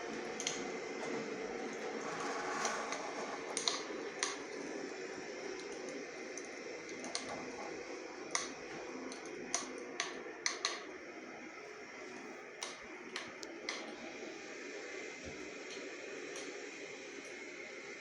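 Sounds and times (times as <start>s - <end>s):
small fire crackling: 0.0s - 11.8s.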